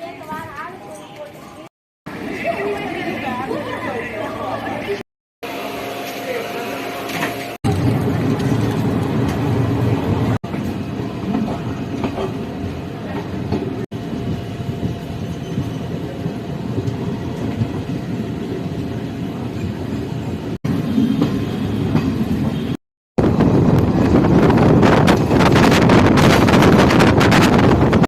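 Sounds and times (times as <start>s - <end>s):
train running on rails: 0.0s - 28.0s.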